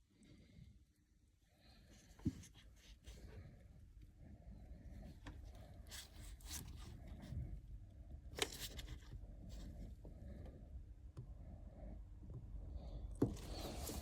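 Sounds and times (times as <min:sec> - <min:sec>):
scraping and rustling: 0:13.3 - 0:14.0.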